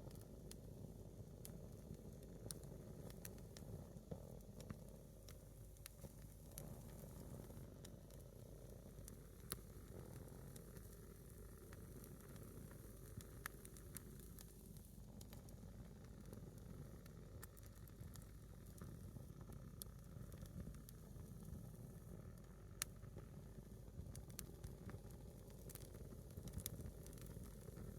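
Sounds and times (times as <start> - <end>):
fire pops and crackles: 0.0 - 27.9
log hissing in campfire: 24.0 - 27.9.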